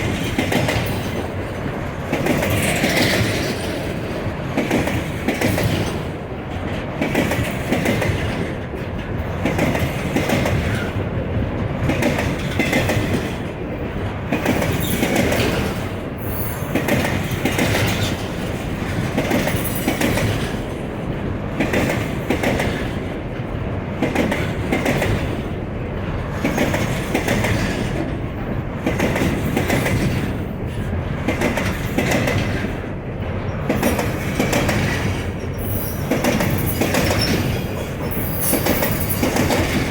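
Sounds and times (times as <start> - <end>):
train wheels clacking over rail joints: 0.0 - 39.9
wheel squeal: 35.5 - 39.3.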